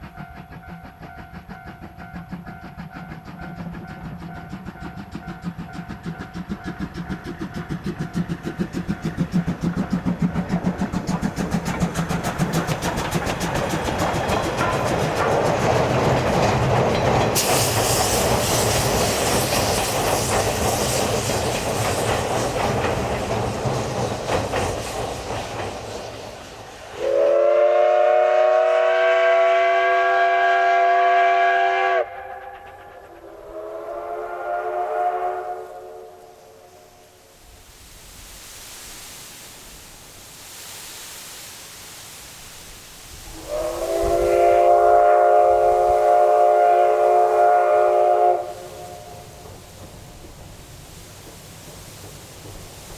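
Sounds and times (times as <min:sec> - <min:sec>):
steam locomotive running: 0:00.0 - 0:52.9
multi-tone train whistle: 0:26.9 - 0:37.2, 0:43.2 - 0:49.5.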